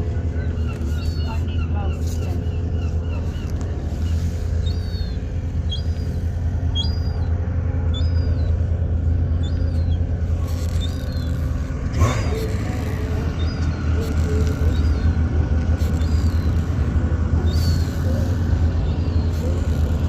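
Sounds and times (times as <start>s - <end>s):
bird chirping: 0.4s - 8.6s.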